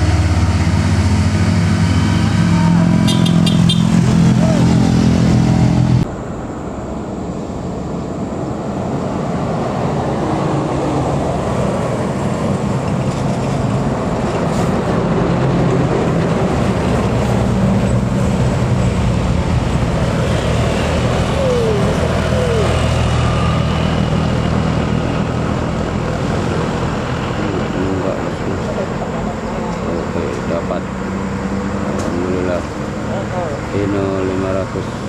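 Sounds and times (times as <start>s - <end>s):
truck and road noise: 0.0s - 35.0s
diesel truck engine running: 13.6s - 35.0s.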